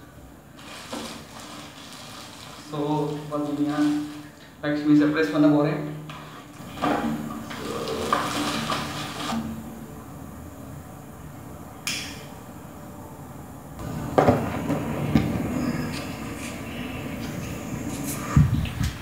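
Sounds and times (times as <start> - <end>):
sharp click: 11.9 - 12.2.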